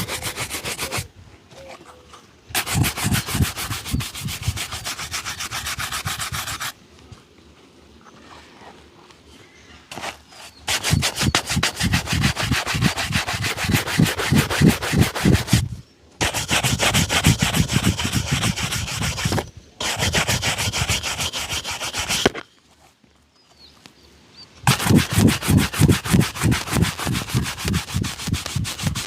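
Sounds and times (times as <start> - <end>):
shoe being buffed: 0.0 - 1.1, 2.6 - 6.7, 9.9 - 22.3, 24.7 - 29.0.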